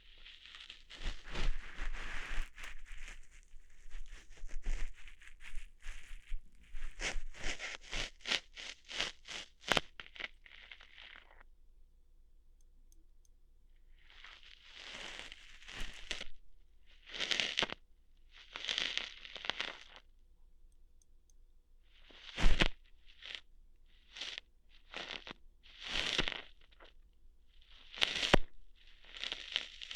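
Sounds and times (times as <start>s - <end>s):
crunchy rustling scrapes: 0.0s - 11.4s, 14.1s - 17.8s, 18.4s - 20.0s, 24.1s - 26.9s, 27.6s - 29.9s.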